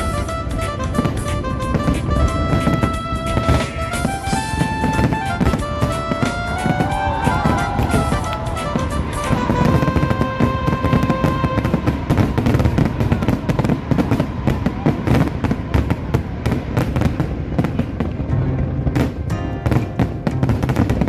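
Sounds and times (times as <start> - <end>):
loud music: 0.0 - 12.6
fireworks bangs and crackles: 0.0 - 18.3.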